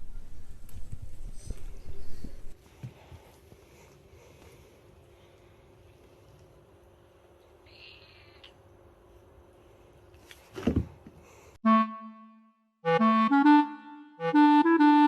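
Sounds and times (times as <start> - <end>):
faint room noise: 0.0 - 11.6
melody of held notes: 11.6 - 15.0.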